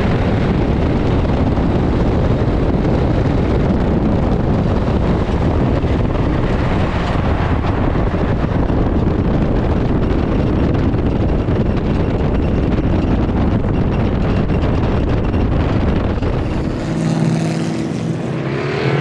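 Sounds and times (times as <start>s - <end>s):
race car engine rumbling: 0.0s - 19.0s
wind rush on microphone: 0.0s - 19.0s.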